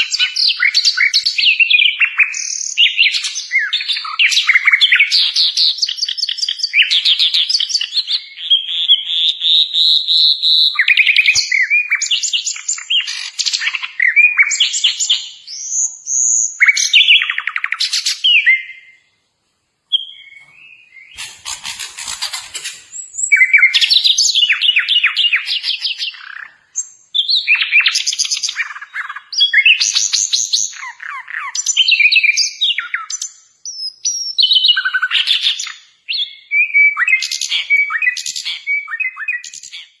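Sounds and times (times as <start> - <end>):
bird song trills and whistles: 0.0 - 19.2, 19.9 - 40.0
bird harsh rattle: 21.2 - 22.9.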